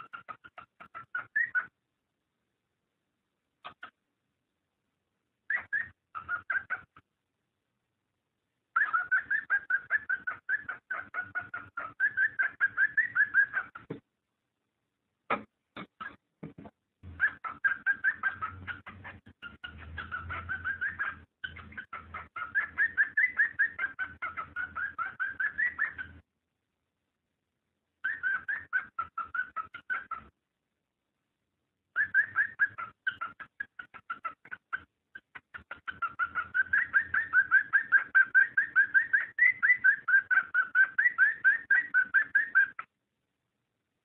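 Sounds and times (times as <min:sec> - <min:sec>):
cockatiel chirping: 0:00.0 - 0:01.8, 0:03.6 - 0:04.0, 0:05.5 - 0:07.1, 0:08.7 - 0:14.0, 0:15.8 - 0:16.2, 0:17.0 - 0:26.3, 0:28.0 - 0:30.4, 0:31.9 - 0:42.9.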